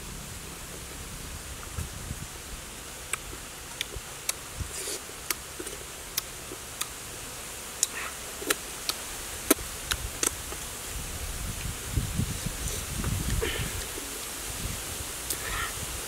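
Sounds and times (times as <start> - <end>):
steady hiss: 0.0 - 16.0
chewing with lip smacks: 7.8 - 10.4.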